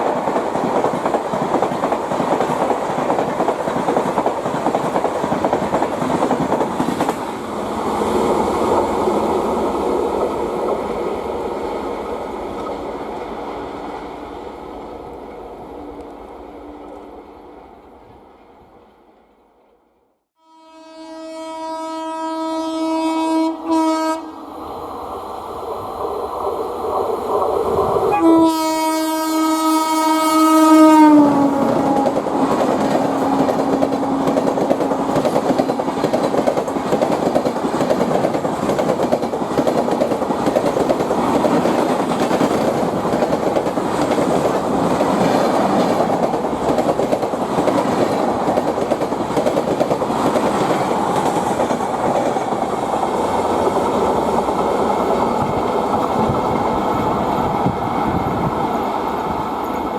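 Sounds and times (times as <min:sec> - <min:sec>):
train rumbling past: 0:00.0 - 0:19.9, 0:20.6 - 0:59.9
train horn blasts: 0:20.4 - 0:24.5, 0:28.1 - 0:35.2
wheels clacking on rail joints: 0:31.6 - 0:58.2.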